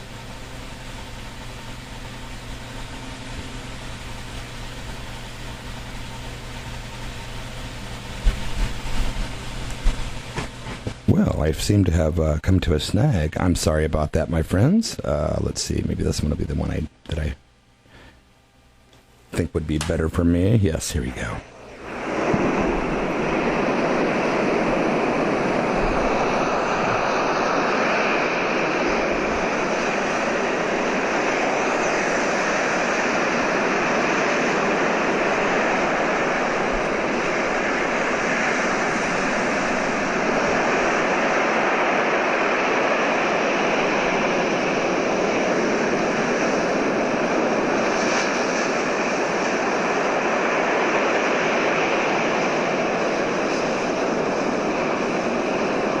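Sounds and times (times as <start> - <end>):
ocean surf rushing: 21.5 - 56.0.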